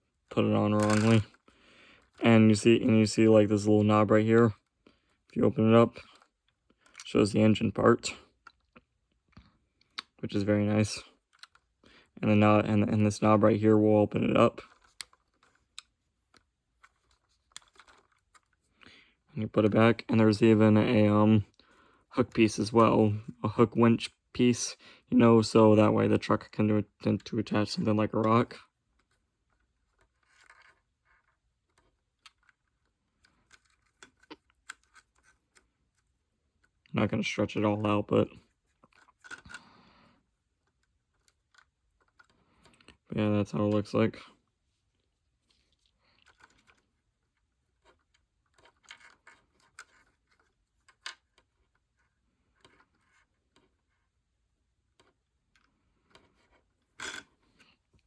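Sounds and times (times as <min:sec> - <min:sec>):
plastic bricks clicking: 0:00.8 - 0:01.3.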